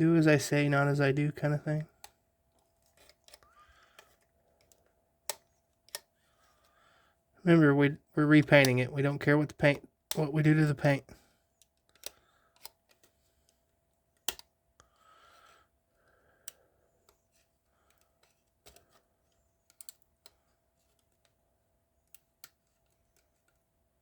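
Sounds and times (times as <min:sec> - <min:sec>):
small plastic clicks: 0:01.9 - 0:06.1, 0:11.6 - 0:15.6, 0:16.4 - 0:21.4, 0:22.0 - 0:24.0.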